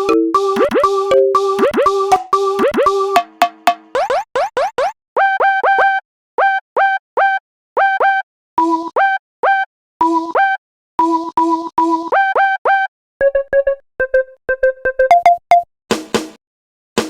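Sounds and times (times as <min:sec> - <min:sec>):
electronic beep sample: 0:00.0 - 0:04.2, 0:15.1 - 0:15.6.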